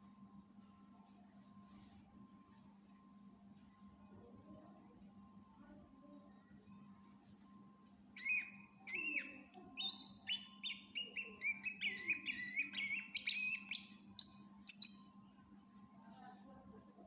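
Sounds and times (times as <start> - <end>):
faint steady hum: 0.0 - 17.0
bird singing whistled notes: 8.2 - 15.2.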